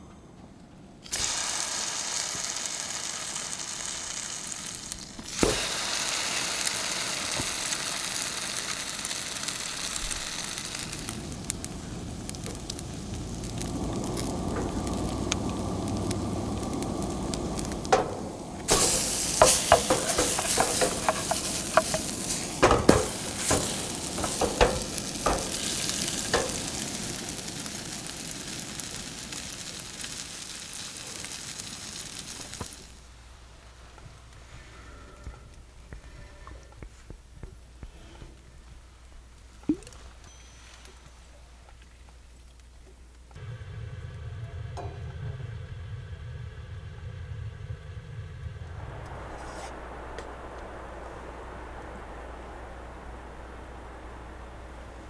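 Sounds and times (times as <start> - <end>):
food sizzling in a pan: 1.1 - 33.8, 48.5 - 55.0
utensils clinking against a pan: 17.9 - 27.0.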